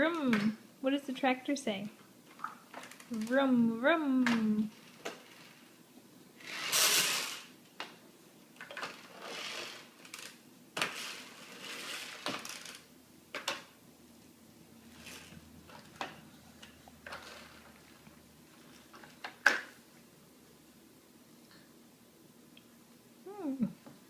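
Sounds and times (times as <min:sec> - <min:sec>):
rustling hiss: 0:04.6 - 0:07.6, 0:08.9 - 0:12.8.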